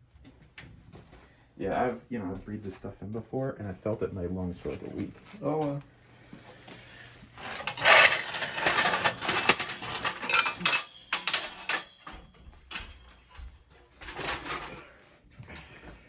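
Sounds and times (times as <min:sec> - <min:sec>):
metal clattering and scraping: 0:06.4 - 0:14.9.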